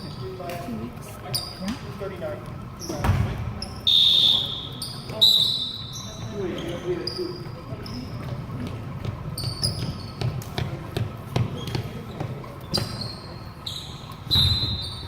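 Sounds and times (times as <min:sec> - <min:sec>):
low background murmur: 0:00.0 - 0:15.0
sneaker squeaks: 0:01.2 - 0:01.9, 0:02.7 - 0:15.0
basketball bouncing on gym floor: 0:08.3 - 0:13.1, 0:14.3 - 0:15.0.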